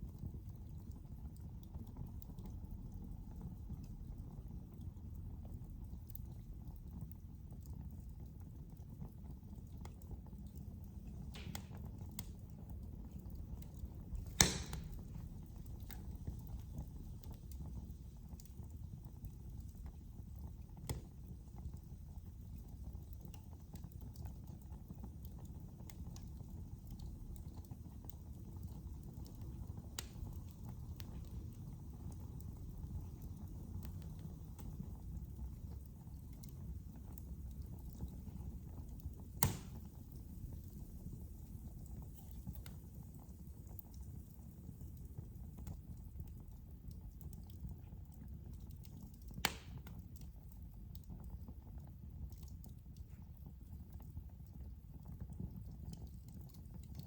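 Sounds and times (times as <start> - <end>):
fire crackles: 0.0 - 57.0
fireplace fire rumbling: 0.0 - 57.0
loud pop from fire: 11.3 - 12.3, 14.1 - 16.4, 39.2 - 40.1, 49.4 - 49.9.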